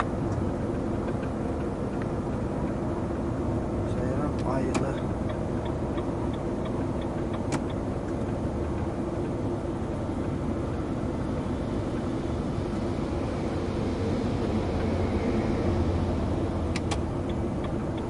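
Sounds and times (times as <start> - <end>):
light ticking: 0.0 - 2.9, 3.9 - 10.8
truck engine and road noise: 0.0 - 18.0
sharp click: 6.0 - 8.2, 16.7 - 17.1.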